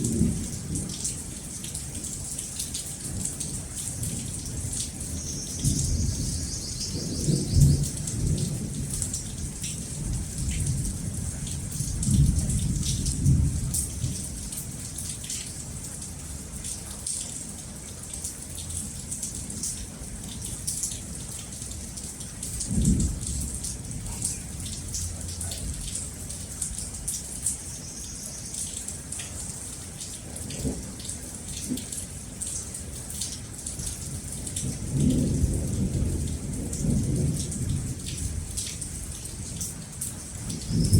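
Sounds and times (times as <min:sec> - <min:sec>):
rain falling: 0:00.0 - 0:40.9
thunder rumbling: 0:05.6 - 0:10.8, 0:40.5 - 0:40.9.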